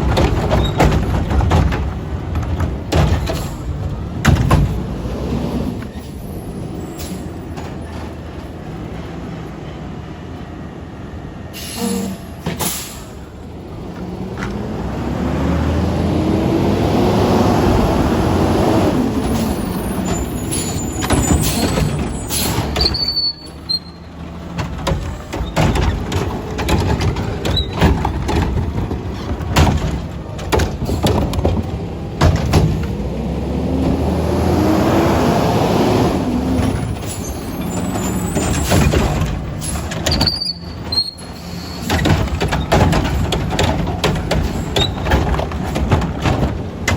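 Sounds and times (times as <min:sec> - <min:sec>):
air brake hiss: 0:11.5 - 0:13.2
truck engine revving: 0:13.0 - 0:46.9
metal clanks: 0:36.6 - 0:46.9.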